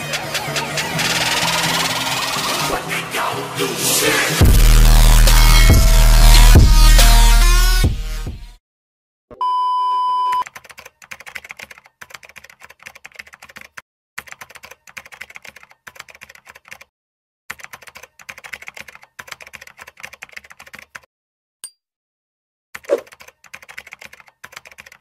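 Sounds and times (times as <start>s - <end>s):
keyboard typing clicks: 10.4s - 16.9s, 22.8s - 25.0s.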